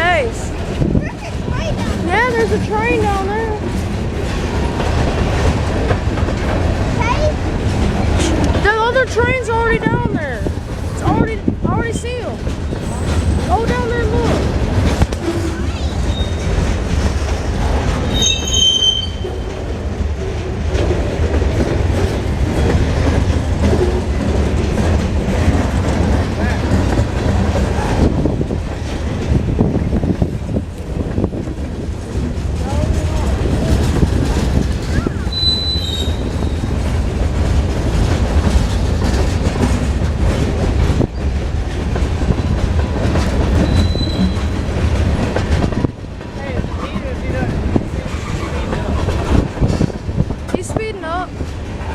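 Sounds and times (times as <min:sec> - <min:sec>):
freight train rumbling past: 0:00.0 - 0:51.9
train wheel squeal: 0:12.7 - 0:13.5, 0:15.2 - 0:16.6, 0:18.0 - 0:19.5, 0:34.9 - 0:36.8, 0:43.5 - 0:44.6.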